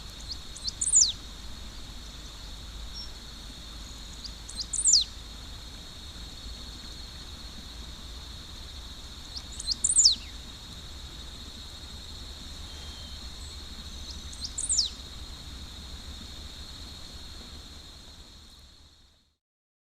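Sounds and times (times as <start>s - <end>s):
high insect drone: 0.0s - 19.4s
bird singing: 0.1s - 5.2s, 9.2s - 10.4s, 12.5s - 15.1s.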